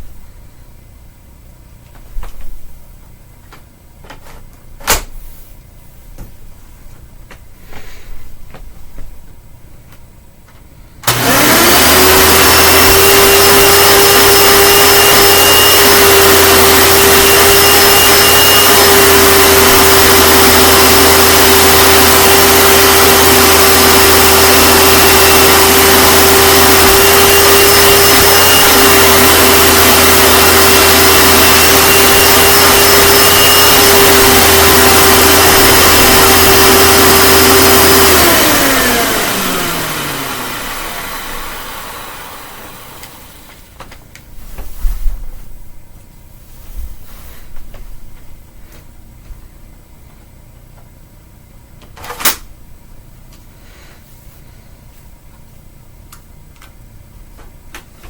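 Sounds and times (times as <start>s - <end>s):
vacuum cleaner motor whine: 11.0s - 43.8s.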